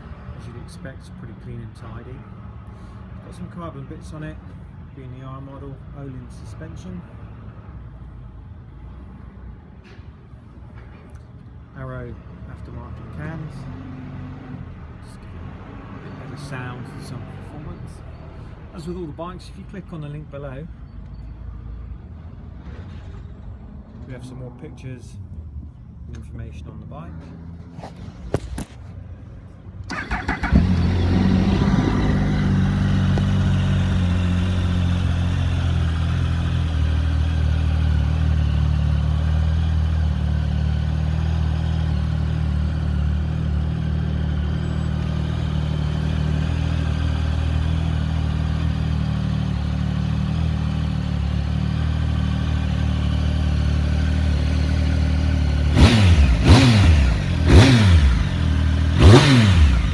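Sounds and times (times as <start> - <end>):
engine revving: 29.9 - 59.9
motorcycle engine idling: 32.2 - 59.9.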